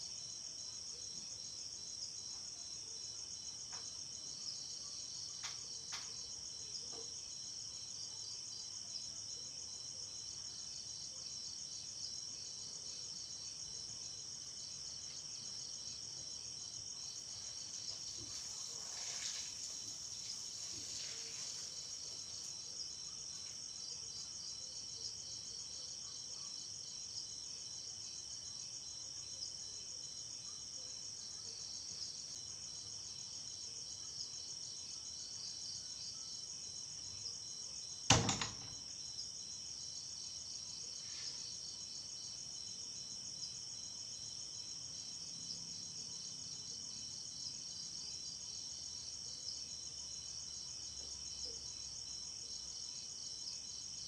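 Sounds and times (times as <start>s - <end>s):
crickets trilling: 0.2s - 54.0s.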